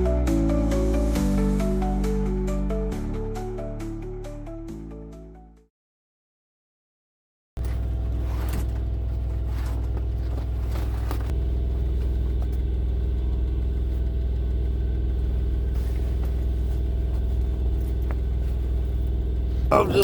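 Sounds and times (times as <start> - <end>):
diesel truck engine idling: 11.4 - 20.0.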